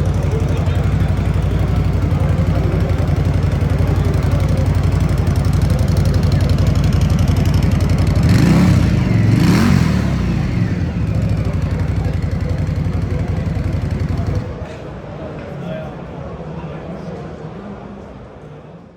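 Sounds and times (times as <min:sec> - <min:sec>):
motorcycle engine idling and revving: 0:00.0 - 0:14.7.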